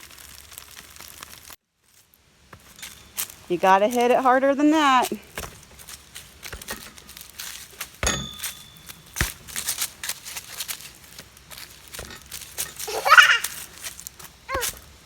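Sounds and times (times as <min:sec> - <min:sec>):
metallic ringing strike: 0:08.0 - 0:09.7
child crying: 0:12.8 - 0:13.6, 0:14.5 - 0:14.7.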